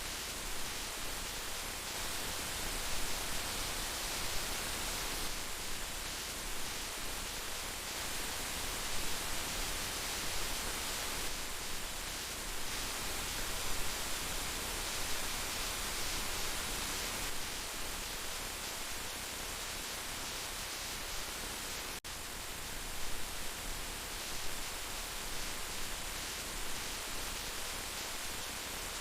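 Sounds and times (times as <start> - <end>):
heavy rain hissing: 0.0 - 29.0.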